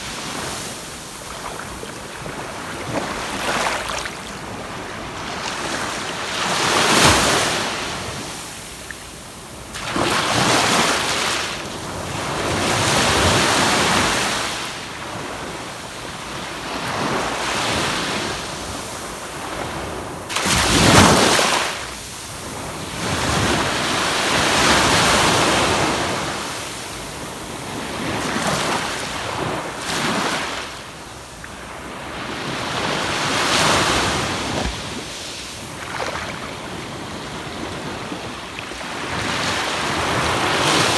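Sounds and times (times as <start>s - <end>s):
waves breaking on sandy beach: 0.0s - 40.9s.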